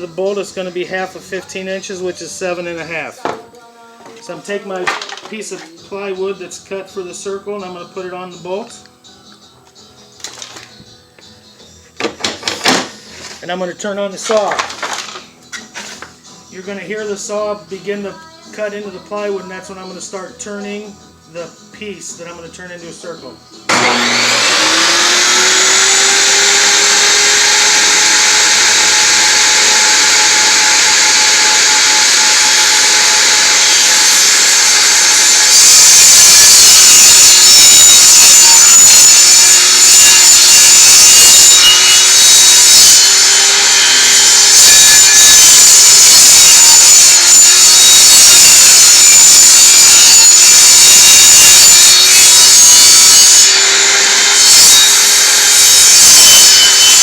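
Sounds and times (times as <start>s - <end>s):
table saw cutting plywood: 23.7s - 57.0s.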